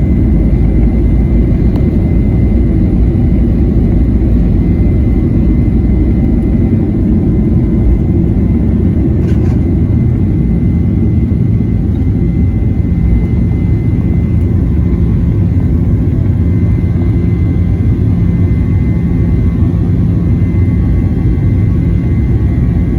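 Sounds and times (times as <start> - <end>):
high whine: 0.0 - 17.2
jet engines rumbling: 0.0 - 22.9.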